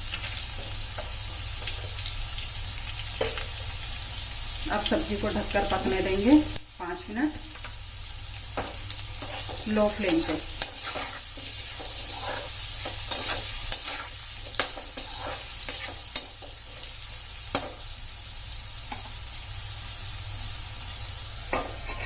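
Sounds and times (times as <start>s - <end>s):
vegetables sizzling in oil: 0.0s - 22.0s
spatula scraping a metal pan: 9.2s - 16.6s, 21.5s - 22.0s.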